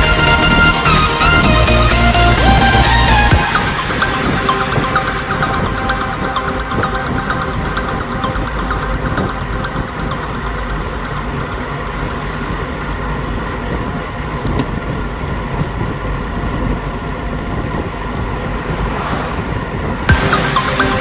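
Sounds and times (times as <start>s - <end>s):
loud electronic music: 0.0s - 13.0s, 20.1s - 21.0s
faint steady tones: 0.0s - 14.3s
steady low rumbling: 0.0s - 21.0s.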